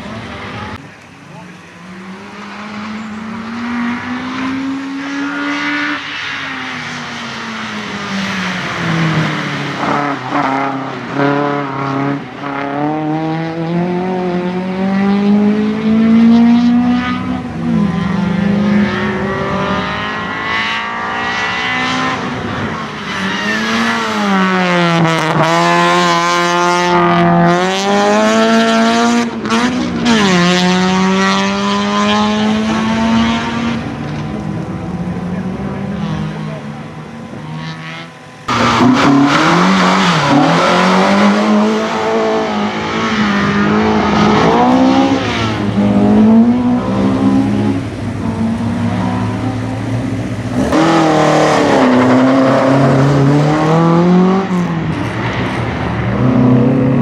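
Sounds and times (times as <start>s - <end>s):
racing car engine revving: 1.4s - 57.0s.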